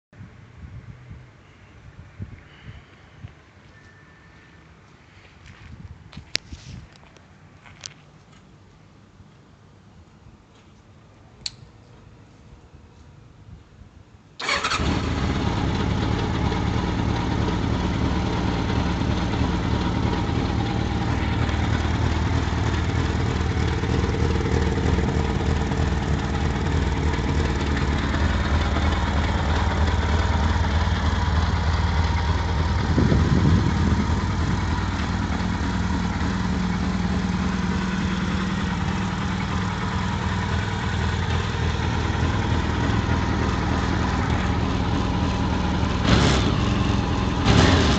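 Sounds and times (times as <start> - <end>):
motorcycle engine starting and idling: 14.4 - 47.9.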